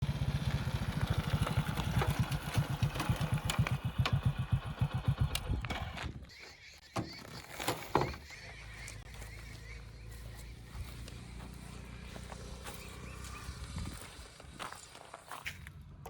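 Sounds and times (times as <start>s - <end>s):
diesel engine chugging: 0.0s - 6.8s, 8.1s - 16.0s.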